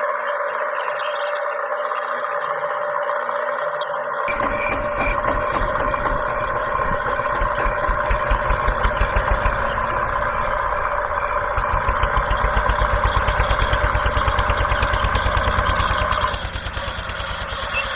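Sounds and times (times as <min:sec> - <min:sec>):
steady whine: 0:01.7 - 0:17.9
tractor engine idling: 0:04.3 - 0:17.9.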